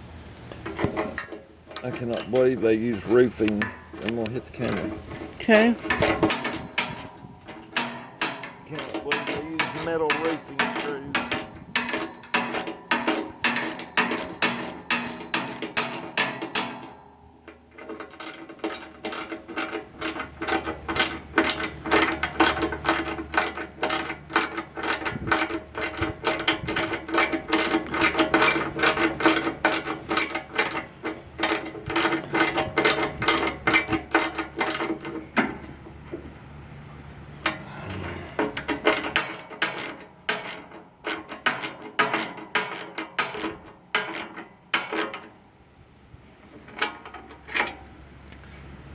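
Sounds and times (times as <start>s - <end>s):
ratchet wrench clicking: 5.6s - 17.2s, 17.8s - 35.2s.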